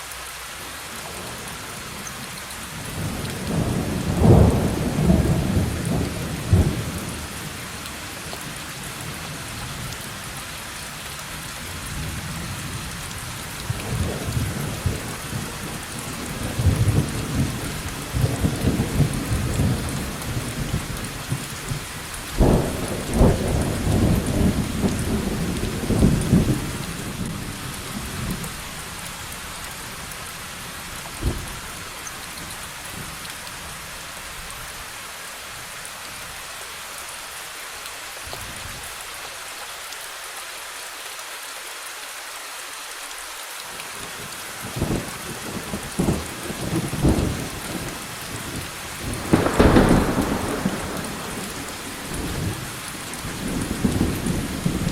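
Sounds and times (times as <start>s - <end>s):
heavy rain: 0.0s - 54.9s
rolling thunder: 22.4s - 28.4s, 44.8s - 54.9s
thunder clap: 48.5s - 54.9s.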